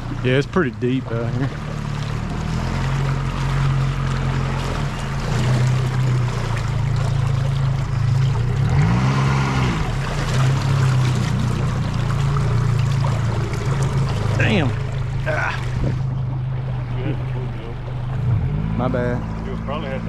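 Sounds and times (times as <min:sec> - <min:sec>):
boat motor running: 0:00.0 - 0:20.0
water washing around hull: 0:00.0 - 0:20.0.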